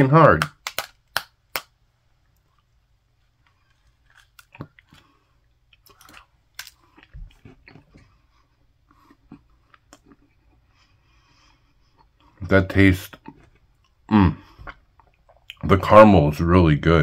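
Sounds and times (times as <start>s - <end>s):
person chewing crunchy pastry: 2.2s - 12.4s, 13.0s - 15.6s.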